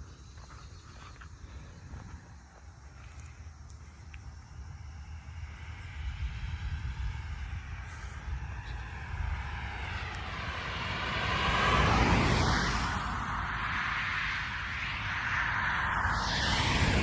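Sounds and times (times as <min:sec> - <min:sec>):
aircraft flying over: 0:00.5 - 0:17.0
low rumble: 0:14.5 - 0:17.0.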